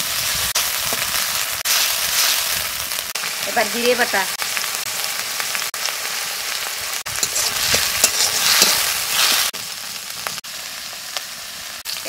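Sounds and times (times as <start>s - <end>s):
masala sizzling in oil: 0.0s - 12.0s
spatula scraping a pan: 7.1s - 9.5s.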